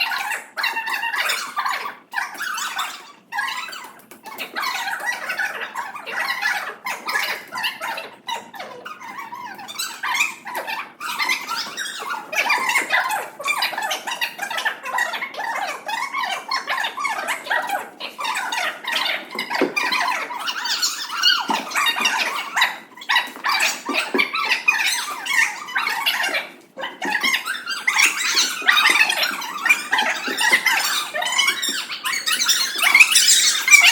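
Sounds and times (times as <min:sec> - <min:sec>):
children chattering: 0:08.6 - 0:33.9.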